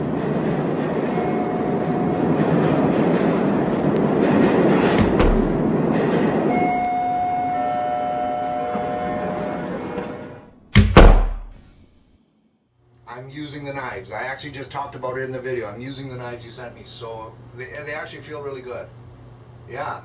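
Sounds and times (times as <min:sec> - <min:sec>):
train rumbling on rails: 0:00.0 - 0:10.4
loud thump: 0:04.9 - 0:05.7, 0:10.7 - 0:11.7.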